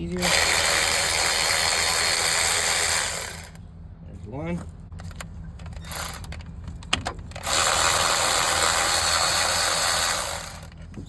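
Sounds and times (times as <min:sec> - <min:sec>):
electric ratchet spinning: 0:00.2 - 0:03.6, 0:05.9 - 0:06.3, 0:07.4 - 0:10.7.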